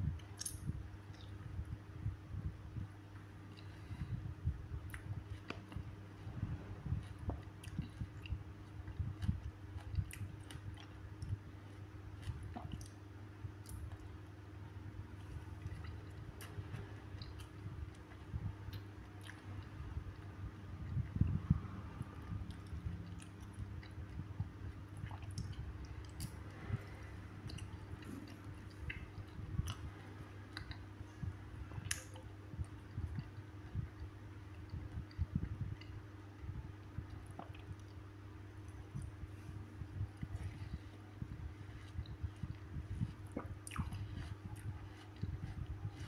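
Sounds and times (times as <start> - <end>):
wet mouth clicks: 0.2 - 1.3, 25.0 - 30.8, 31.8 - 33.3
chewing juicy fruit: 3.1 - 46.0.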